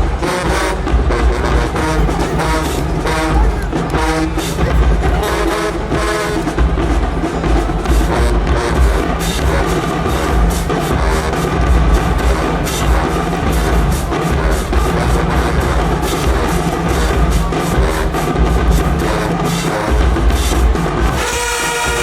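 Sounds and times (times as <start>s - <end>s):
heavy drums: 0.0s - 22.0s
marching band playing: 0.0s - 22.0s.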